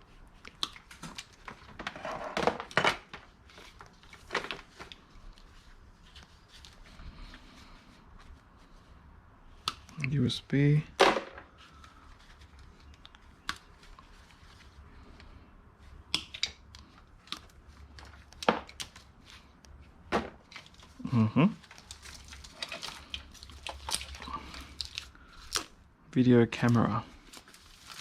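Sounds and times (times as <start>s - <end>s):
plastic items clicking and knocking: 0.5s - 5.0s, 16.1s - 19.0s, 21.6s - 25.7s.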